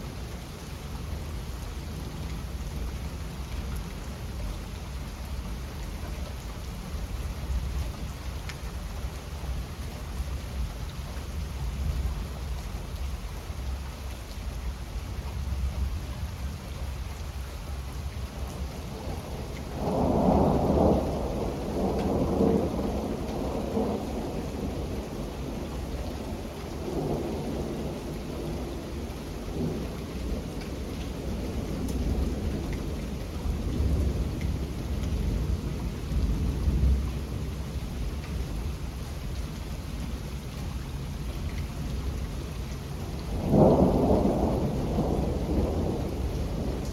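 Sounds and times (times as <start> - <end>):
steady rain: 0.0 - 46.9
thunder rolling: 18.8 - 37.4, 43.2 - 46.9.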